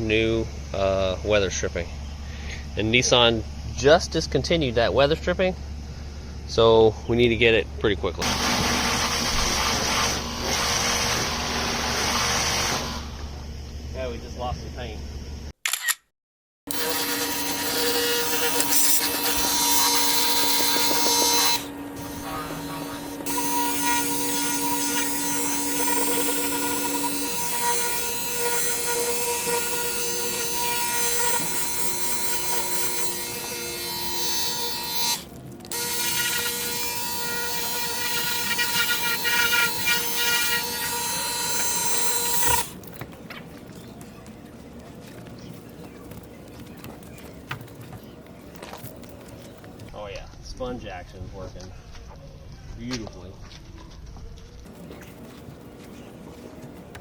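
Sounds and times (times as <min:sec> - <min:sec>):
water jet hissing: 0:08.2 - 0:13.3
pressure washer pump whining: 0:08.2 - 0:13.6, 0:16.7 - 0:43.0.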